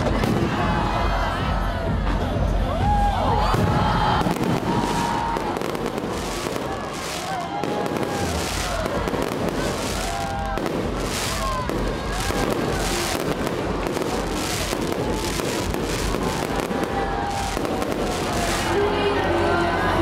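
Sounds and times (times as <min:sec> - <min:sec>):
crowd voices: 0:00.0 - 0:20.0
fireworks crackling bursts: 0:03.5 - 0:19.0.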